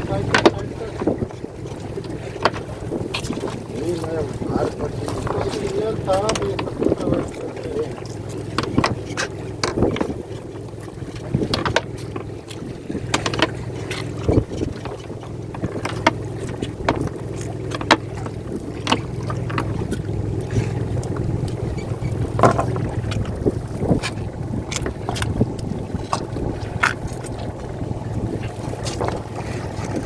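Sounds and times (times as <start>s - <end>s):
gear knocking and clattering: 0.0s - 7.3s, 8.2s - 30.0s
boat engine hum: 0.0s - 30.0s.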